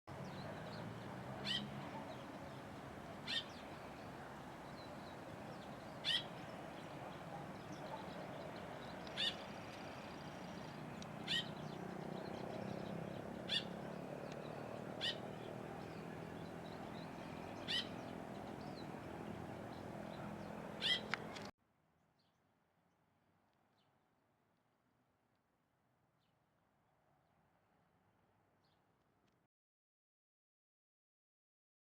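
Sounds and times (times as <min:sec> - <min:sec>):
bird calling with sharp high notes: 0:11.0 - 0:12.0, 0:17.2 - 0:18.9, 0:20.1 - 0:21.5.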